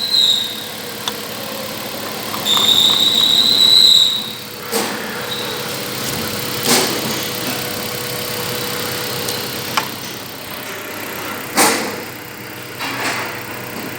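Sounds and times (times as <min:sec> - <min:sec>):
thin steady whine: 0:00.0 - 0:11.0
car engine idling: 0:00.0 - 0:13.9.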